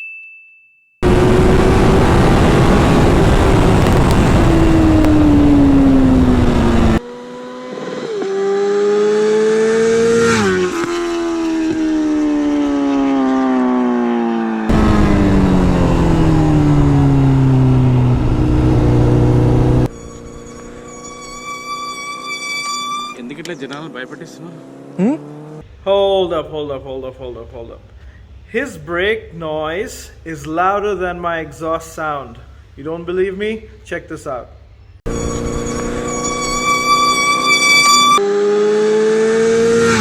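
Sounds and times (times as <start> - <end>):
heavy noise: 1.0 - 7.0, 14.7 - 19.9
sport motorcycle engine revving: 1.0 - 25.6, 35.1 - 40.0.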